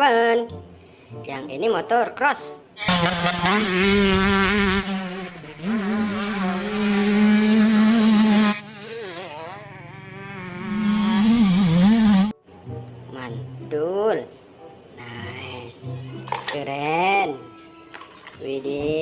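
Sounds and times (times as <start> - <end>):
dirt bike engine at high revs: 2.9 - 12.4.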